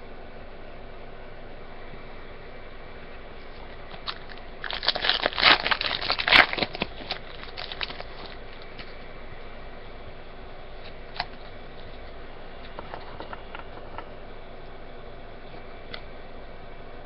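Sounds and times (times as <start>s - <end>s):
wrapper crinkling and tearing: 3.7s - 9.0s.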